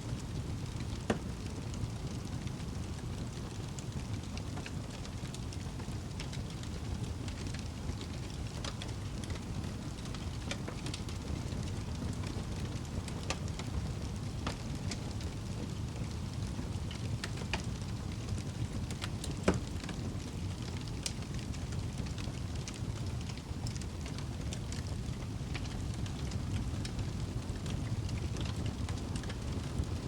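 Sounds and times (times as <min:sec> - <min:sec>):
wood fire burning: 0:00.0 - 0:30.0
fire crackling and popping: 0:00.1 - 0:30.0.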